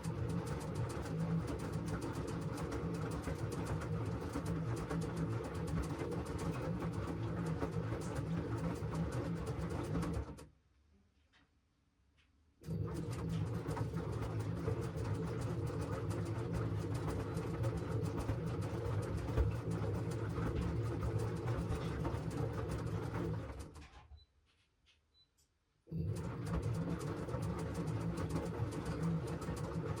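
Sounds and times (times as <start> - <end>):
washing machine drum turning: 12.7 - 23.8.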